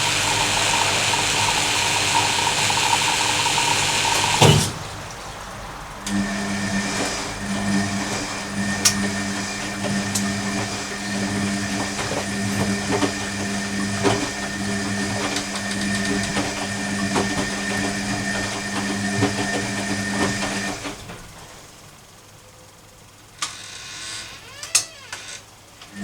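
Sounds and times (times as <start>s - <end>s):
washing machine hum: 0.0s - 26.0s.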